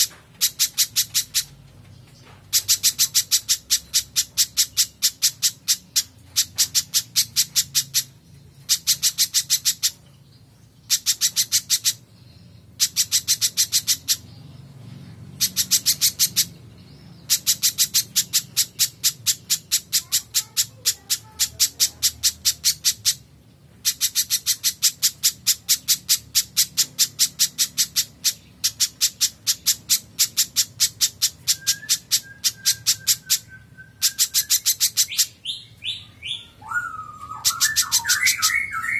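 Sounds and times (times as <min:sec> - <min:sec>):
bird calling high chip notes: 0:17.3 - 0:23.2, 0:23.9 - 0:38.9.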